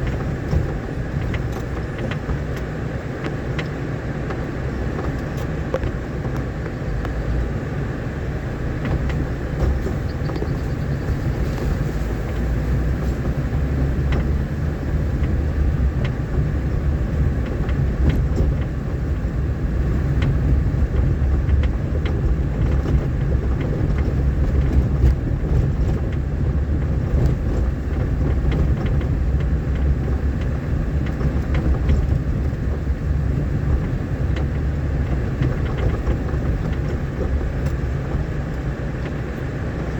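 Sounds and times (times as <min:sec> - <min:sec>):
vehicle rumbling on dirt road: 0:00.0 - 0:39.9
knocks and rattles: 0:08.8 - 0:16.5.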